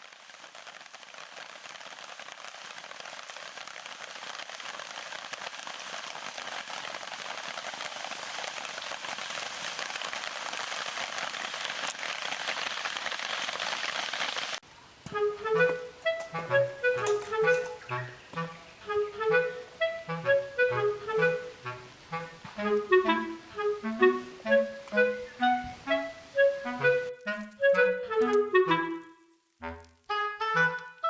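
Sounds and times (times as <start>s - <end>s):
heavy rain falling: 0.0s - 14.6s, 15.2s - 31.0s
clarinet background music: 15.1s - 31.0s.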